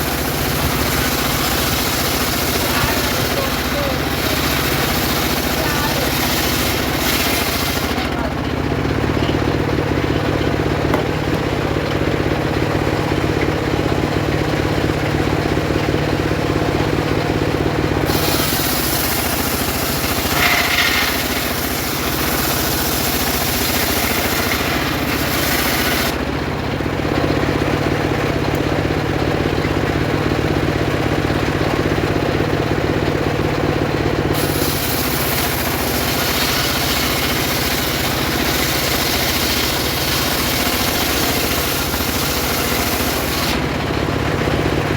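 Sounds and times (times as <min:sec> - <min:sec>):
saw blade ripping through wood: 0:00.0 - 0:08.3, 0:18.0 - 0:26.2, 0:34.3 - 0:43.8
saw engine droning: 0:00.0 - 0:44.9.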